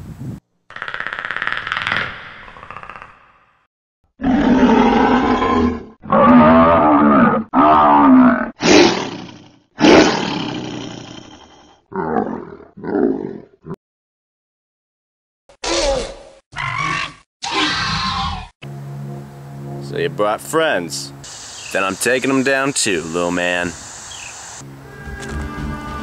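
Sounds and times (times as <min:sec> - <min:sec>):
monster roars and growls: 0:04.2 - 0:13.6, 0:15.6 - 0:18.5.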